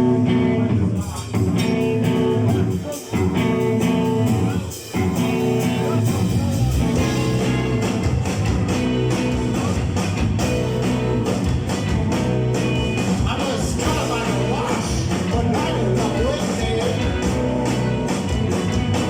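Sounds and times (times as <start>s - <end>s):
electric guitar: 0.0s - 19.0s
live rock band playing: 0.0s - 19.0s
person singing: 13.2s - 18.0s.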